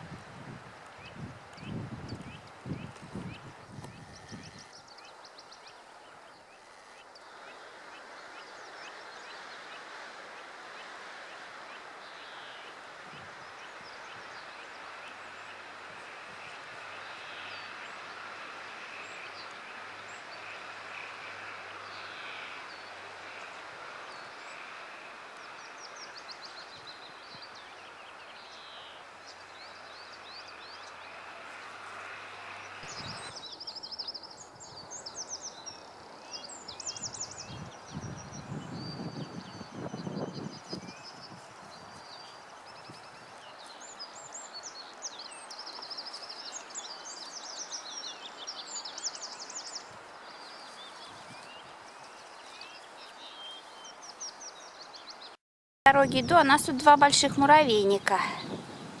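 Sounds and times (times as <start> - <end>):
rushing outdoor background noise: 0.0 - 59.0
small birds chirping: 32.6 - 55.4.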